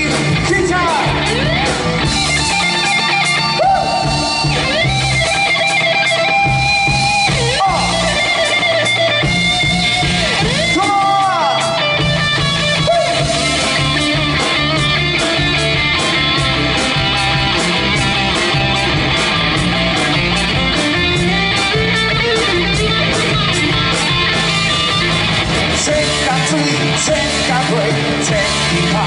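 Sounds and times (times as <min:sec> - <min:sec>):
electric guitar: 0:00.0 - 0:29.0
live band instrumental: 0:00.0 - 0:29.0.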